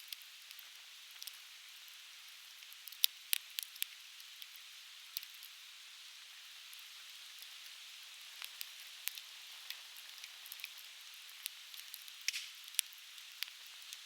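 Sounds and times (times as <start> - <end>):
campfire crackling: 2.5 - 5.5, 8.3 - 14.0.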